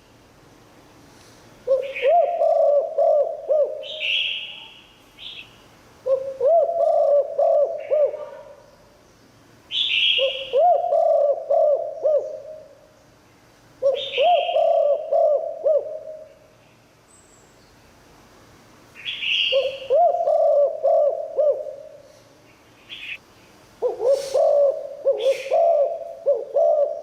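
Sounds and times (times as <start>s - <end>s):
dove cooing: 1.6s - 4.3s, 6.0s - 8.6s, 10.0s - 12.9s, 13.8s - 16.4s, 19.5s - 22.1s, 23.8s - 27.0s.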